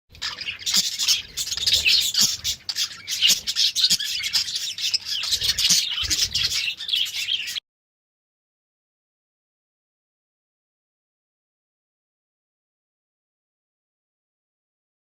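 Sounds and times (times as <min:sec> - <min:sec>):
budgerigars chirping and chattering: 0:00.2 - 0:07.6.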